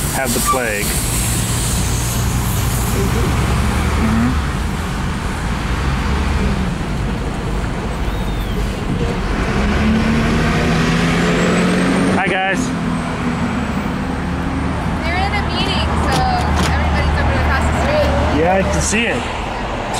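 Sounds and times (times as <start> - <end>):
heavy engine hum: 0.0 - 19.9
traffic drone: 0.0 - 19.9.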